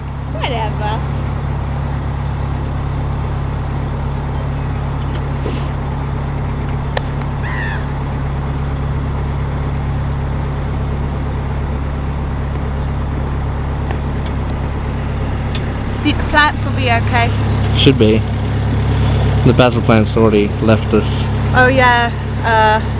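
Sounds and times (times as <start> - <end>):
bird calling: 0.0 - 22.9
boat engine droning: 0.0 - 22.9.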